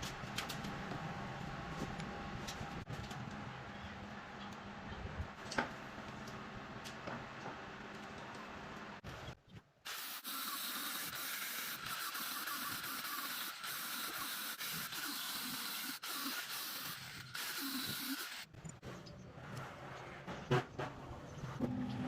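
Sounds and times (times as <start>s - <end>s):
steady spraying hiss: 9.9s - 18.5s.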